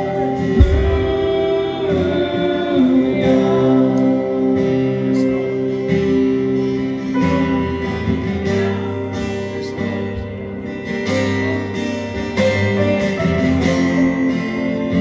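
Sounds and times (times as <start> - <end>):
strummed acoustic guitar chords: 0.0 - 15.0.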